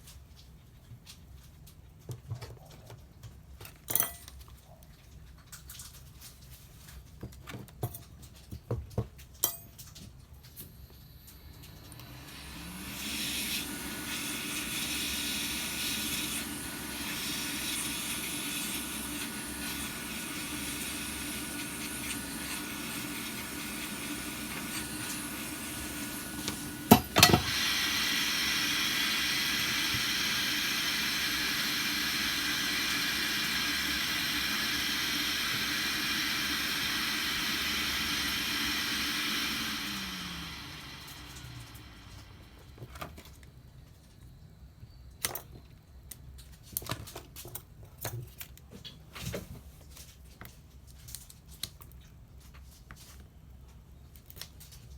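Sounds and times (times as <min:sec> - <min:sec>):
hot-air blower hissing: 0:10.4 - 0:43.4.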